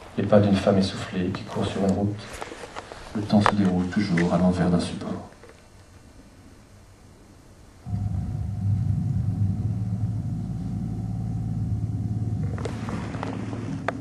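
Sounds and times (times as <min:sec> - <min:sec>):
vehicle engine rumble: 0:07.9 - 0:14.0.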